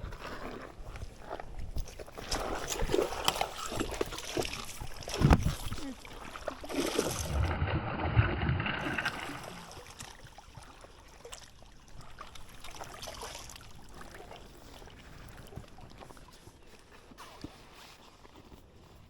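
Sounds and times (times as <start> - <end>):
water splashing: 1.9 - 16.4
water trickling: 2.7 - 16.4.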